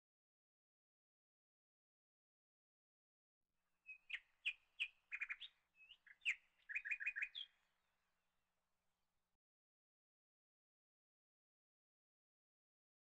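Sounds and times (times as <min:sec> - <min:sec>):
bird chirping: 0:03.8 - 0:07.7.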